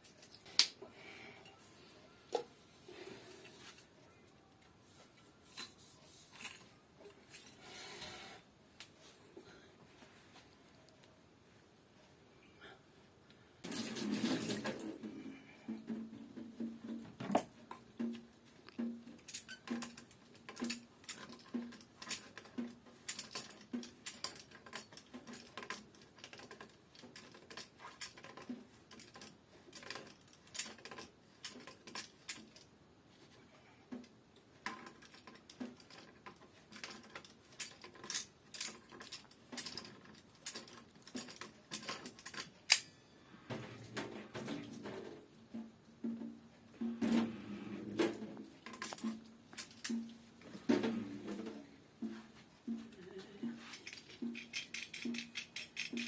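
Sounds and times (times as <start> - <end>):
small sharp clicks and clinks: 53.7 - 56.0.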